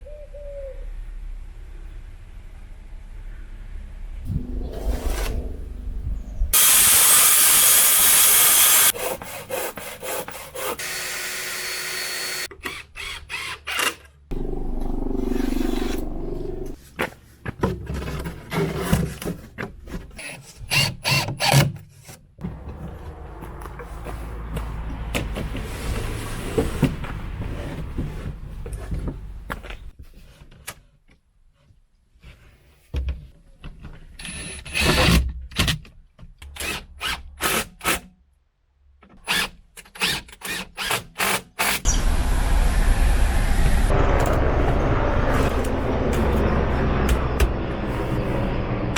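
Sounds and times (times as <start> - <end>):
power tool drilling: 6.6 - 9.0, 10.8 - 13.8
cutting: 6.6 - 12.5.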